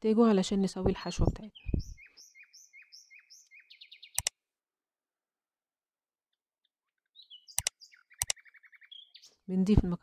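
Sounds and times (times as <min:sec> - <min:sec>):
small bird chirping and trilling: 0:00.9 - 0:04.4, 0:06.9 - 0:09.5
sharp clicks: 0:04.1 - 0:04.4, 0:07.5 - 0:08.4.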